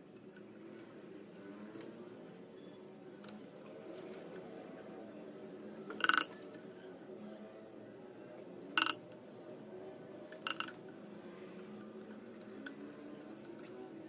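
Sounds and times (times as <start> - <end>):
metallic clinks of small tools: 2.6 - 2.8.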